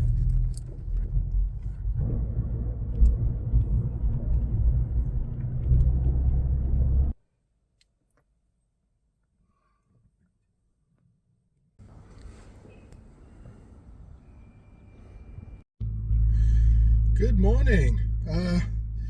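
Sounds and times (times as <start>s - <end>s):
car engine rumbling: 0.0s - 7.2s, 15.4s - 19.0s.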